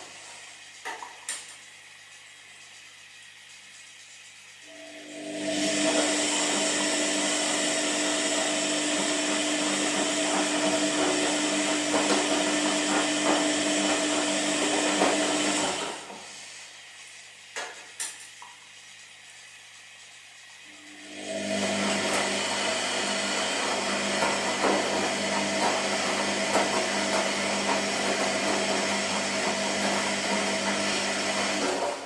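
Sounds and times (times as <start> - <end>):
washing machine motor hum: 0.0 - 32.0
washing machine swishing: 5.2 - 16.6, 21.4 - 32.0.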